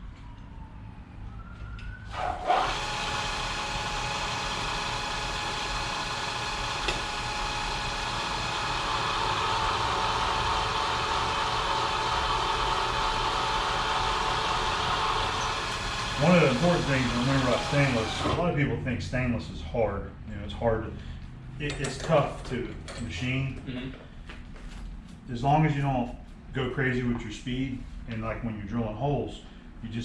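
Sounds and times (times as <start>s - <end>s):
milling machine drilling metal: 2.2s - 18.4s.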